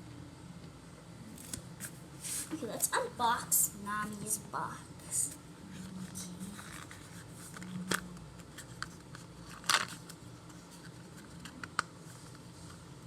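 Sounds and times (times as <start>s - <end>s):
rustling scrape: 1.8s - 2.6s, 5.2s - 12.8s
packaging rustling and clicking: 6.6s - 12.8s.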